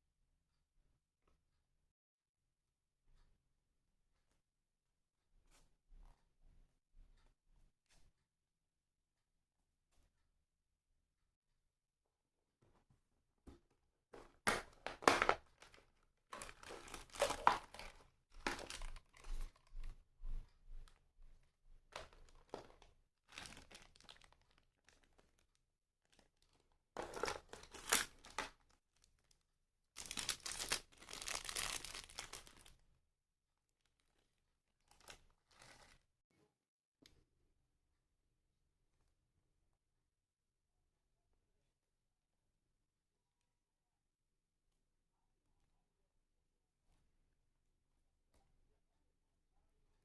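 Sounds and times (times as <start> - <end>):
plastic parts rustling and crinkling: 14.2 - 20.0, 21.9 - 29.4, 30.0 - 32.8, 33.8 - 36.1.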